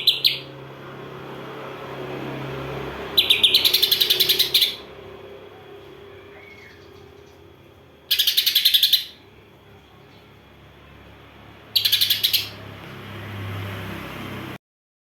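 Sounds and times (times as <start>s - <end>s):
songbird harsh chirps: 0.0s - 0.5s, 3.1s - 4.9s, 6.1s - 7.5s, 8.1s - 9.3s, 11.8s - 12.6s.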